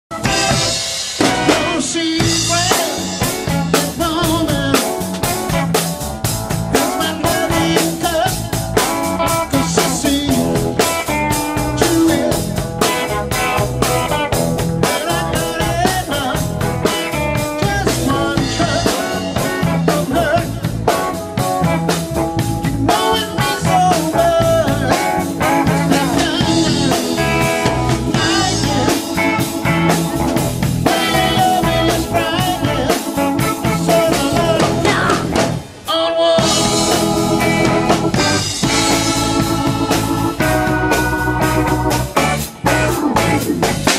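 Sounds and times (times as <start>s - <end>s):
live blues-rock band playing: 0.1s - 43.9s.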